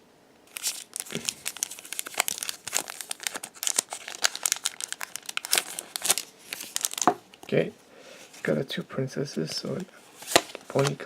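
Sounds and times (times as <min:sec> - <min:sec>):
foil pack crinkling and tearing: 0:00.5 - 0:07.2.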